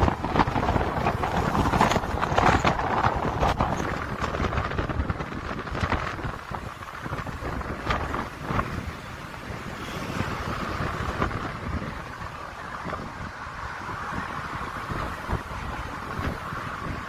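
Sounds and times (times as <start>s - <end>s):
knocks and rattles: 0.0s - 4.9s
motorway traffic: 0.0s - 17.0s
rumbling road noise: 0.0s - 17.0s.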